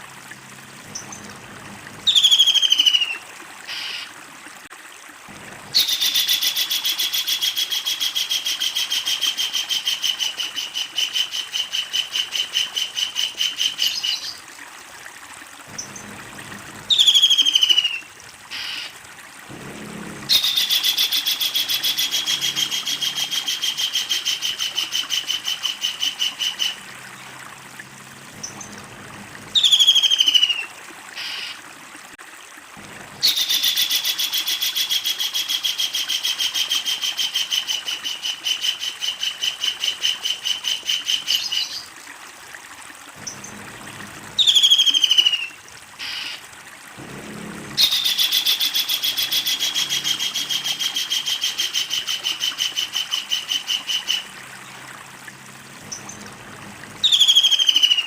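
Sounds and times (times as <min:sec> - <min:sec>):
kingfisher rapid repeated calls: 0:02.0 - 0:04.1, 0:05.7 - 0:14.4, 0:16.8 - 0:19.0, 0:20.2 - 0:26.9, 0:29.4 - 0:31.6, 0:33.2 - 0:41.8, 0:44.4 - 0:46.4, 0:47.8 - 0:54.4, 0:57.0 - 0:58.0.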